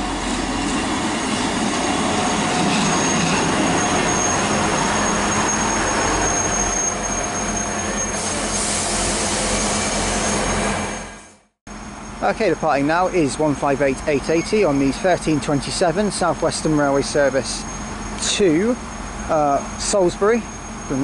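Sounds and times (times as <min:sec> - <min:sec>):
train braking: 0:00.0 - 0:21.0
thin high brake squeal: 0:02.3 - 0:12.3, 0:14.3 - 0:14.9, 0:16.2 - 0:21.0
brief air hiss: 0:08.2 - 0:09.0.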